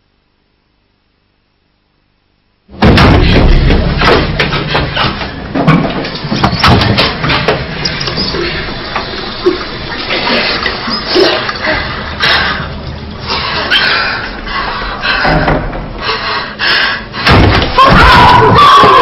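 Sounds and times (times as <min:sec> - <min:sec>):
water rushing: 0:07.4 - 0:13.7.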